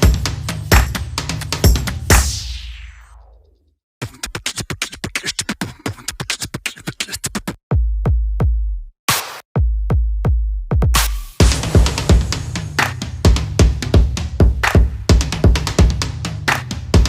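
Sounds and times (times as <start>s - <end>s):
electronic music with drum machine: 0.0s - 3.3s, 9.1s - 17.0s
heavy bass hits: 11.4s - 16.0s.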